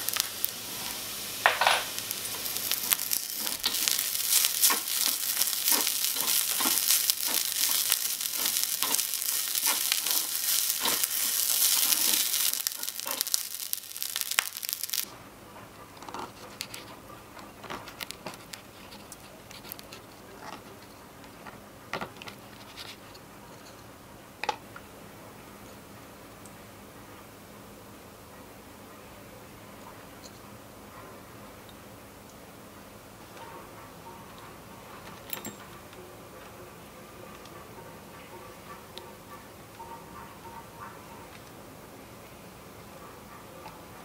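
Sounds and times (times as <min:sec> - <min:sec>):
fried rice sizzling in a pan: 0:00.0 - 0:15.1.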